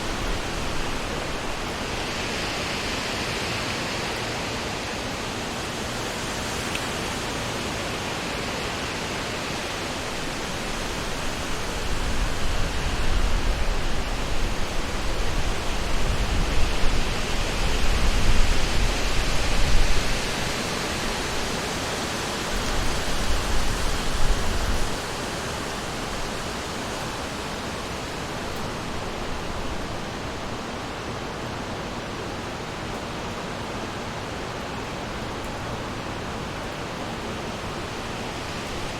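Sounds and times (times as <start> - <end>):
wind through trees: 0.0 - 38.9
low wind rumble: 9.3 - 31.8.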